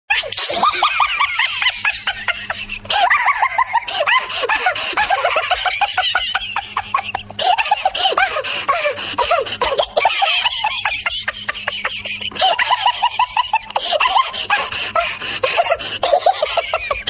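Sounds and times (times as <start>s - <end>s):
high-pitched laughter: 0.1s - 17.0s.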